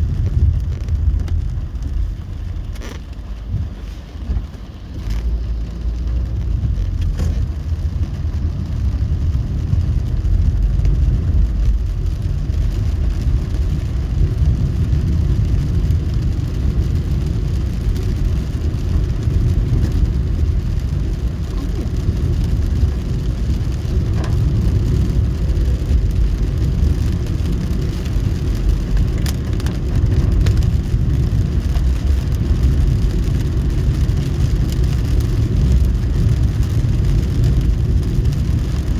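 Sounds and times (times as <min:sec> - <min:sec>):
car engine and tyres rumbling: 0:00.0 - 0:38.9.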